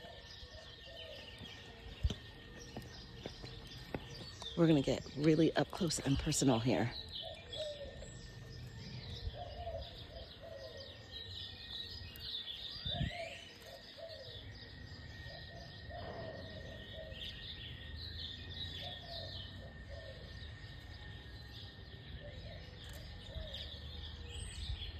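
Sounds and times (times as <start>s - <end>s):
flock of birds chirping: 0.0s - 24.9s
lower bird call: 6.1s - 24.9s.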